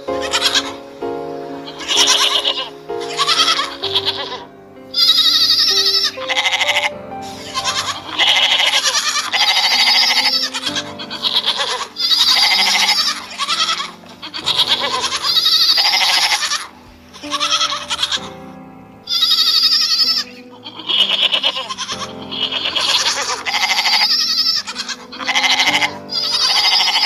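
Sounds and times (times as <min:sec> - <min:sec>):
background music: 0:00.0 - 0:27.0
goats bleating: 0:07.5 - 0:18.2.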